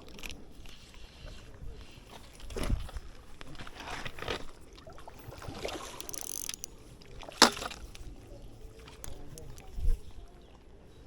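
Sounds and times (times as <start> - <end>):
water splash: 4.7 - 6.1
knocks and clatter against kayak: 5.4 - 8.1.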